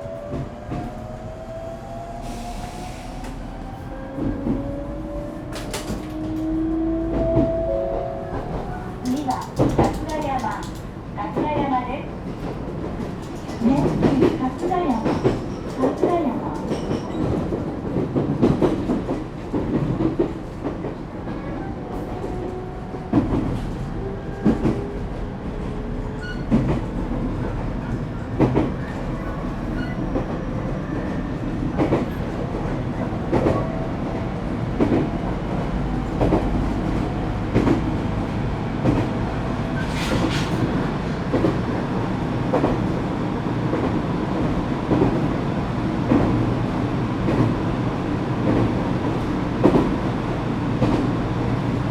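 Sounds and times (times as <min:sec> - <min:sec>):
train rumble inside car: 0:02.3 - 0:51.9
wheels clicking over rail joints: 0:09.0 - 0:10.9.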